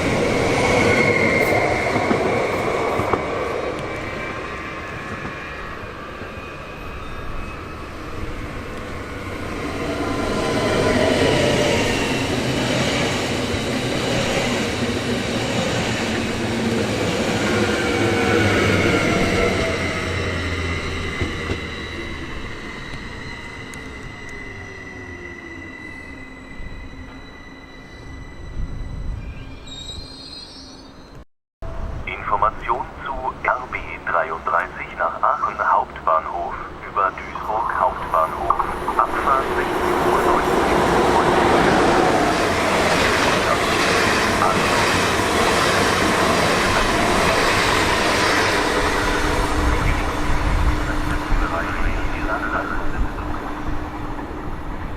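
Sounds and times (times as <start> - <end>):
train wheels rushing on rails: 0.0 - 24.6, 37.5 - 54.9
high squeal falling in pitch: 19.7 - 31.2
train rumble: 31.6 - 54.9.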